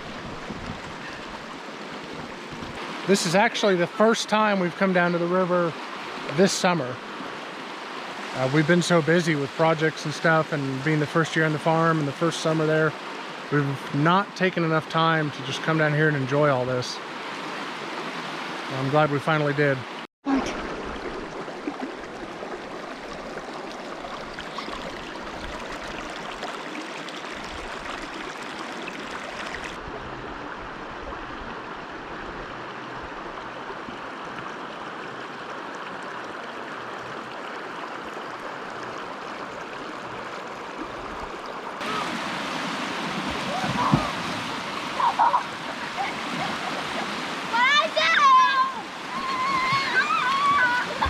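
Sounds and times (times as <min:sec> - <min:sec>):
river flowing over rocks: 0:20.3 - 0:51.0.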